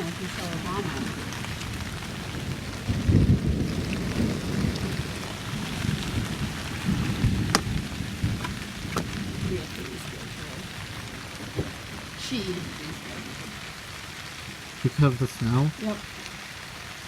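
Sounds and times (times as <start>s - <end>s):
heavy rain falling: 0.0s - 17.0s
thunder rumbling: 0.0s - 17.0s.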